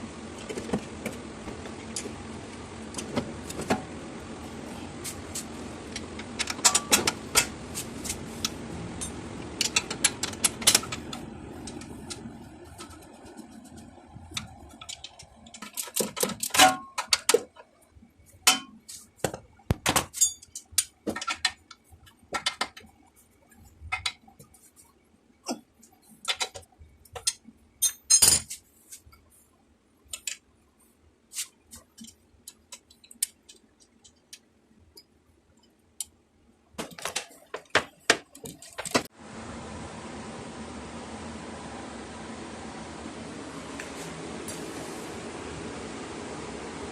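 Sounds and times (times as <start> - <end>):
metal tools clinking on metal: 20.1 - 21.0, 27.2 - 28.6.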